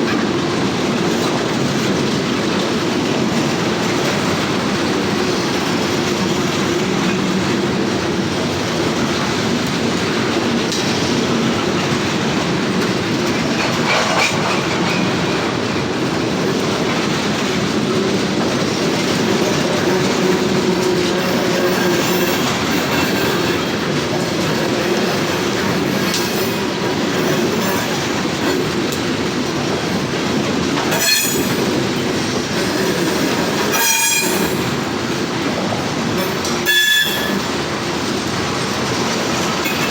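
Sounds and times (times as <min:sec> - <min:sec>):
freight train rumbling on rails: 0:00.0 - 0:39.9
train wheel squeal: 0:18.4 - 0:37.8, 0:38.8 - 0:39.9.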